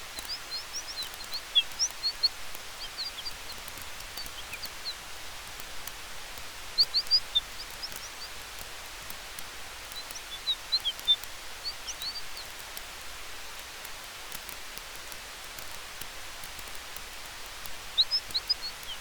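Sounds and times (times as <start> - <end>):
campfire hiss and crackles: 0.0 - 19.0
high bird-like chirps: 0.2 - 5.0, 6.8 - 8.4, 10.0 - 12.5.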